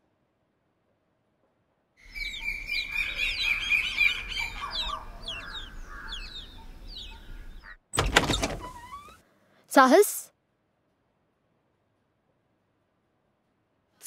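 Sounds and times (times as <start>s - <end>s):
birds chirping: 2.0s - 9.2s.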